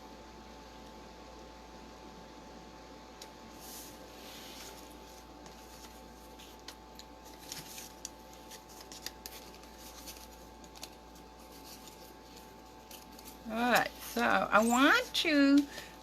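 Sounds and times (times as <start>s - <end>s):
low steady hum: 0.0s - 16.0s
paper handling clicks and taps: 5.4s - 14.1s.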